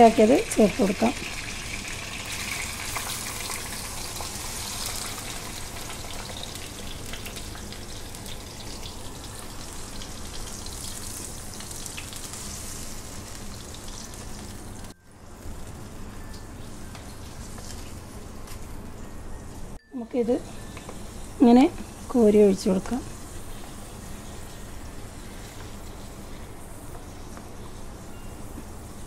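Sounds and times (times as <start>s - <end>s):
paste sizzling in hot oil: 0.1s - 14.8s.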